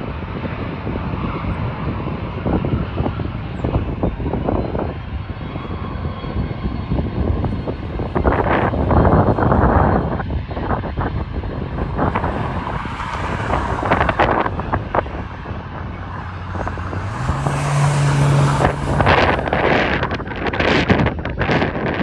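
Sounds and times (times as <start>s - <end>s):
wind buffeting microphone: 0.0s - 22.0s
jet engine rumble: 6.8s - 22.0s.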